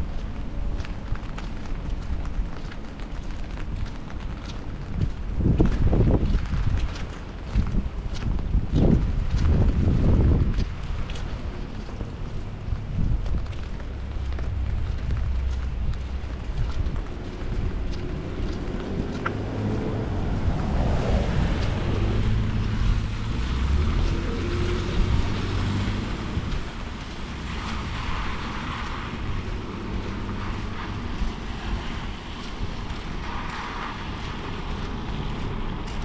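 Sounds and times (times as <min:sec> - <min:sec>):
light traffic noise: 0:00.0 - 0:36.0
rain: 0:00.0 - 0:36.0
wind on microphone: 0:03.2 - 0:36.0
motor vehicle rumbling past: 0:12.5 - 0:31.9.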